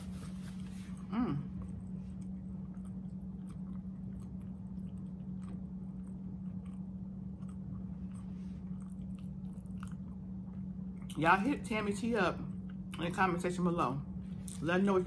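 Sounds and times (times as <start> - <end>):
person chewing food: 0.0 - 11.2
steady low hum: 0.0 - 15.0.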